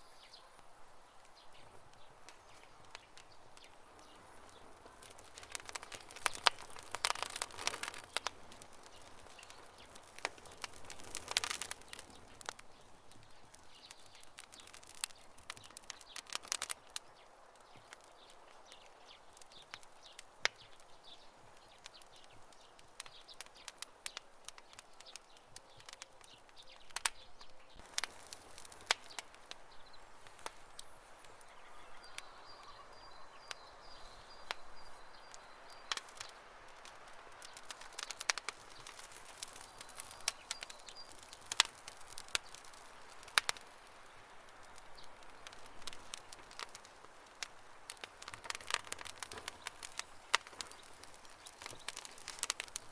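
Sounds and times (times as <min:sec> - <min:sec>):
campfire crackling and popping: 0:00.0 - 0:52.9
faint steady hiss: 0:00.0 - 0:52.9.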